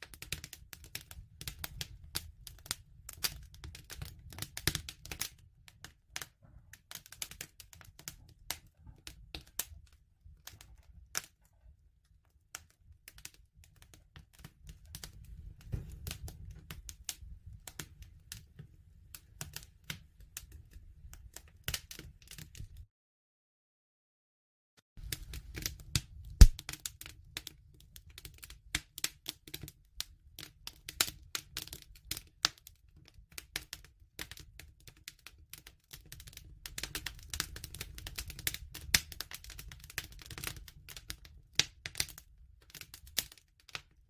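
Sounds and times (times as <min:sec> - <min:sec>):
campfire crackling: 0:00.0 - 0:11.4, 0:12.5 - 0:22.8, 0:25.0 - 0:43.8.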